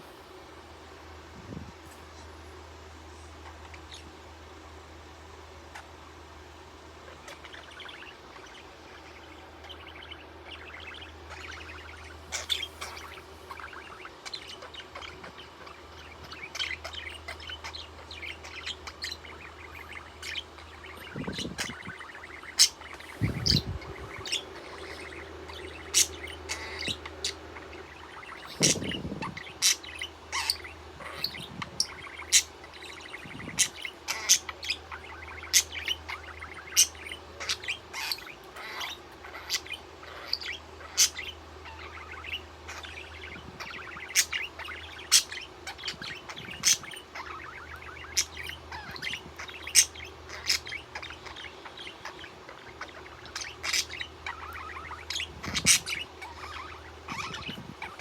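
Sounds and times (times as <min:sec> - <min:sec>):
budgerigar chirping: 0:07.1 - 0:58.0.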